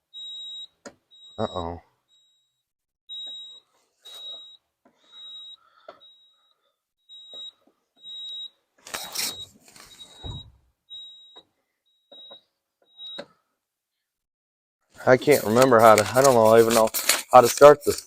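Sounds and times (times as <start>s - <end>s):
high single-tone warning beeps: 0.2s - 8.5s, 9.2s - 13.2s.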